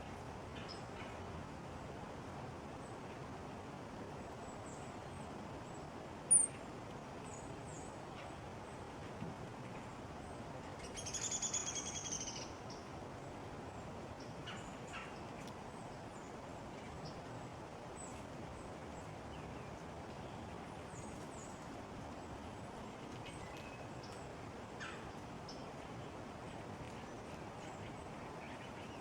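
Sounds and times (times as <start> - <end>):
outdoor background hiss: 0.0 - 29.0.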